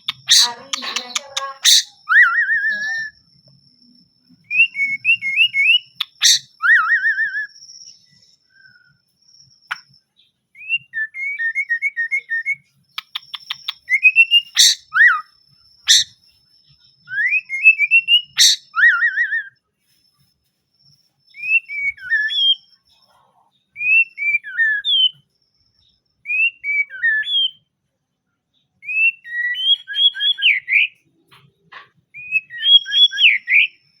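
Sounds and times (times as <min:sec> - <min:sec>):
bird singing whistled phrases: 0:00.0 - 0:03.2, 0:04.4 - 0:09.0, 0:10.6 - 0:15.3, 0:15.9 - 0:16.2, 0:17.0 - 0:19.6, 0:21.3 - 0:22.8, 0:23.8 - 0:25.2, 0:26.2 - 0:27.7, 0:28.8 - 0:31.0, 0:32.2 - 0:34.0.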